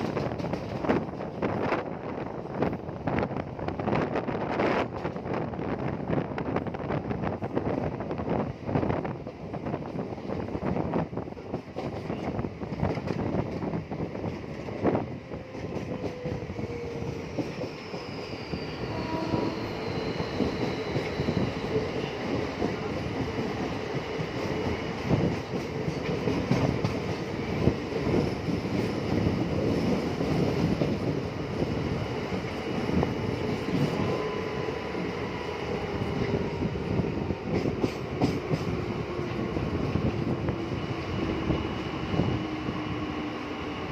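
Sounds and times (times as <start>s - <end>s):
knocks of train wheels: 0.0s - 1.7s, 11.4s - 18.1s, 22.2s - 31.0s, 37.3s - 39.3s
train wheels rumbling: 0.0s - 43.9s.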